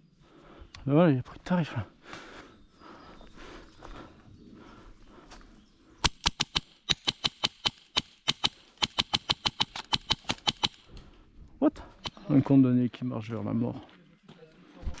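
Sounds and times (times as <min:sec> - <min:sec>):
airsoft gun rapid shots: 0:06.0 - 0:10.9.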